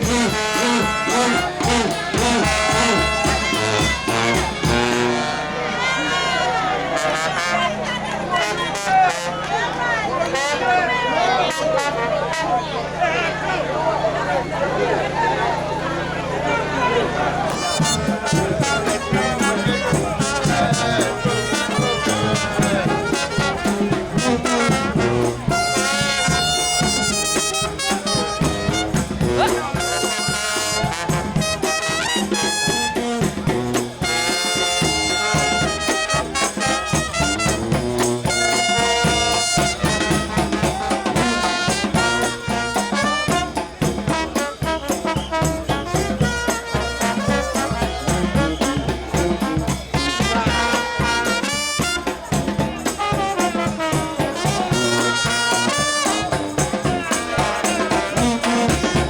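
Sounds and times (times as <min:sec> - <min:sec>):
steady drum beat: 0:00.0 - 0:05.5, 0:17.4 - 0:59.0
trumpets and trombones: 0:00.0 - 0:14.4, 0:15.0 - 0:59.0.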